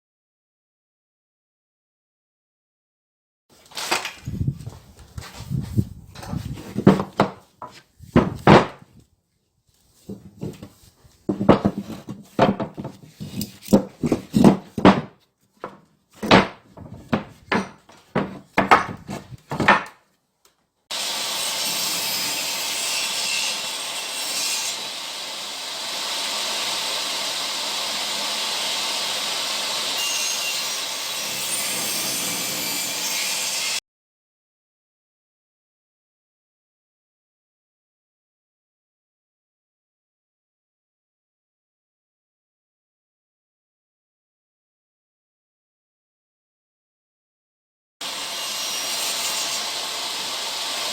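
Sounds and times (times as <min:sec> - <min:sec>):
hand saw cutting wood: 0:10.1 - 0:14.8, 0:20.9 - 0:33.8, 0:48.0 - 0:50.9.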